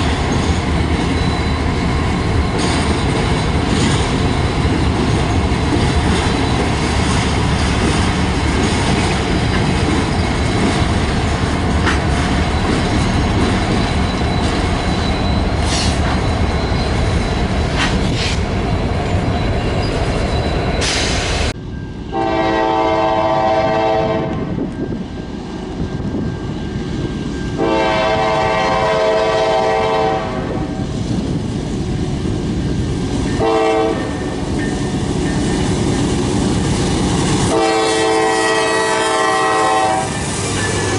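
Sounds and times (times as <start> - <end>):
train wheels rumbling on rails: 0.0 - 40.9
locomotive air horn blasts: 22.1 - 24.5, 27.6 - 30.8, 33.4 - 34.3, 37.4 - 40.2.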